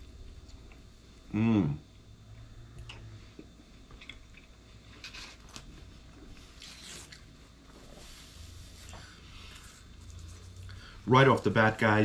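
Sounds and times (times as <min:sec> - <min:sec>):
faint chewing of crispy pizza: 0:02.4 - 0:11.5.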